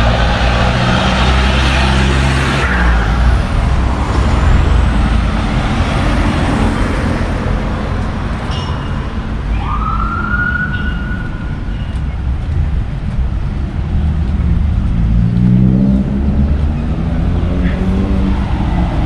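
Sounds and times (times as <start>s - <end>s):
street traffic: 0.0s - 19.0s
siren: 9.4s - 12.0s.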